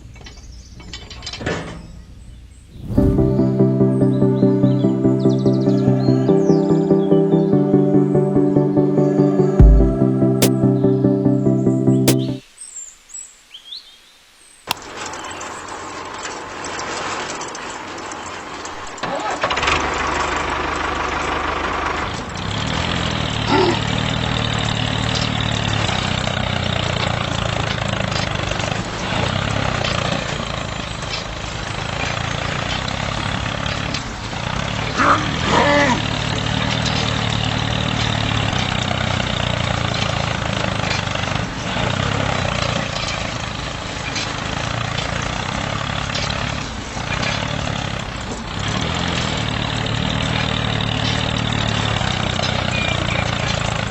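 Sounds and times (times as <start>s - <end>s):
high sliding sounds: 2.7s - 6.5s.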